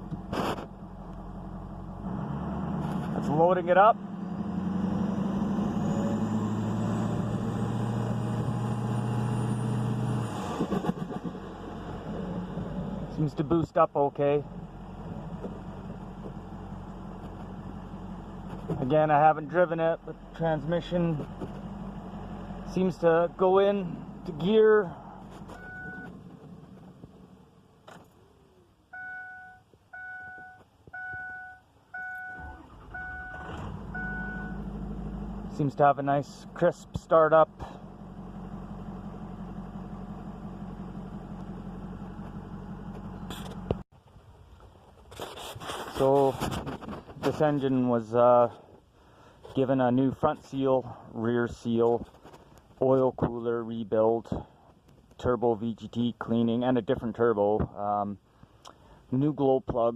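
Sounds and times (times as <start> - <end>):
diesel engine revving: 0.0 - 13.6, 14.2 - 27.7, 32.0 - 43.9
dashboard warning chime beeping: 25.6 - 26.1, 28.9 - 34.6.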